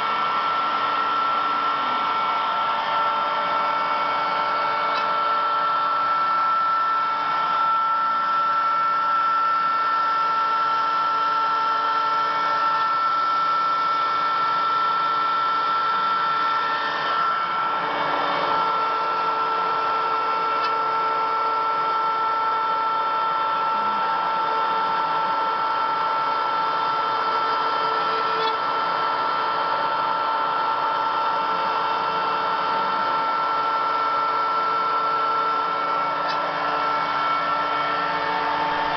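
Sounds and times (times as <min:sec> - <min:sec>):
cnc machine motor whine: 0:00.0 - 0:38.9.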